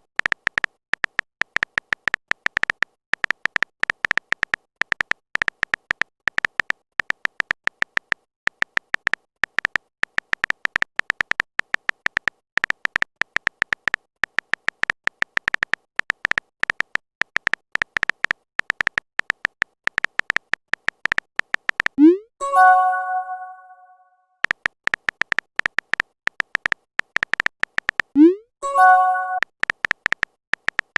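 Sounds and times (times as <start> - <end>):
phone keyboard typing clicks: 0.0 - 23.8, 24.4 - 30.9
message notification chime: 22.0 - 24.1, 28.2 - 29.4.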